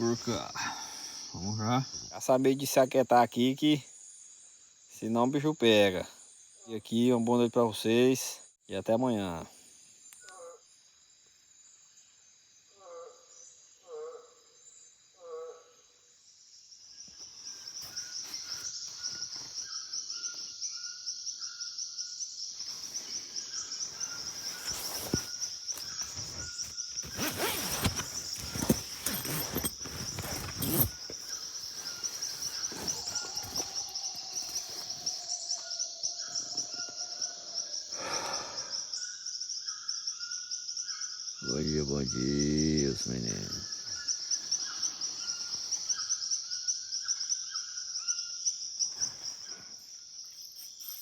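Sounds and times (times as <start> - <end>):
high insect chorus: 0.0 - 51.0
short chirping calls: 22.7 - 35.3.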